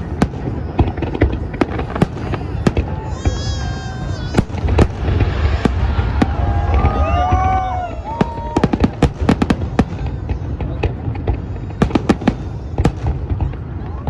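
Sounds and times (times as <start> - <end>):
continuous low rumble: 0.0 - 14.0
fireworks bursting in bangs: 0.0 - 14.0.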